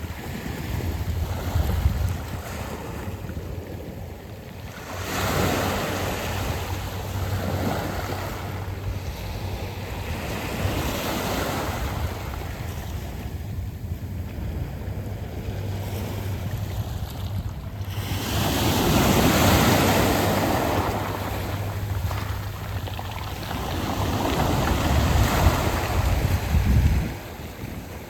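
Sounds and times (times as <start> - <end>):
wind rumble on microphone: 0.0 - 28.0
waves washing onto pebble beach: 17.7 - 28.0.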